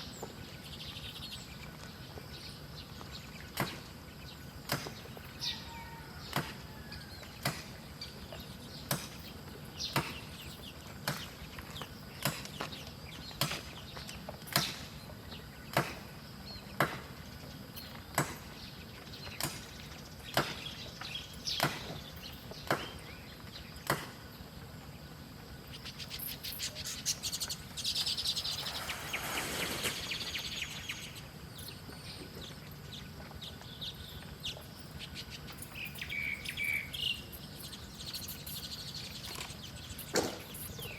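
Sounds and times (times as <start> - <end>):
small birds chipping: 0.0 - 40.9
bird wingbeats fluttering: 25.8 - 31.2.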